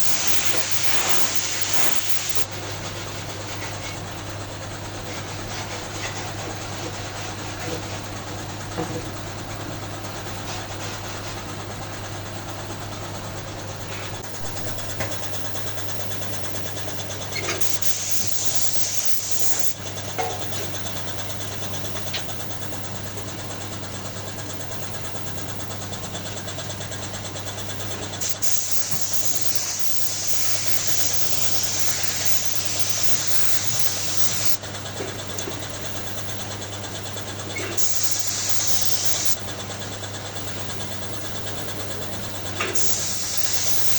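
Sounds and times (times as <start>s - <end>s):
loud hissing: 0.0s - 2.5s, 14.2s - 19.8s, 27.6s - 34.6s, 37.6s - 39.6s, 40.3s - 43.9s
machinery motor hum: 0.0s - 43.9s.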